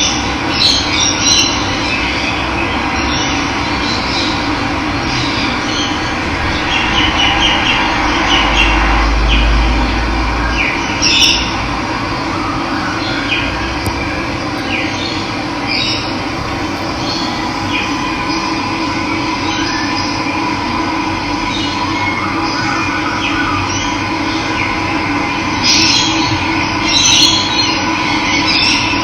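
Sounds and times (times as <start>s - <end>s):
birds chirping: 12.2s - 20.3s.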